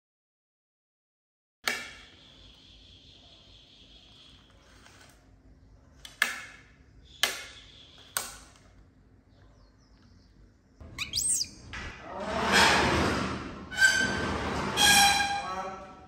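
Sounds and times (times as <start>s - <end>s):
baby monkey crying: 11.0s - 11.7s.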